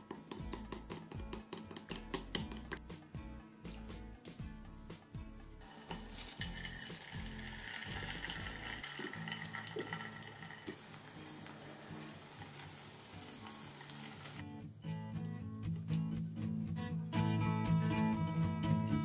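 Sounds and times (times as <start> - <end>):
sausage sizzling in a frying pan: 5.6 - 14.4.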